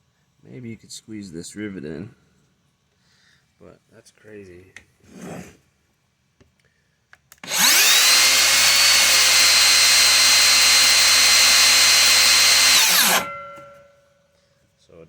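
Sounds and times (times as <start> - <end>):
circular saw motor whine: 7.4 - 13.8.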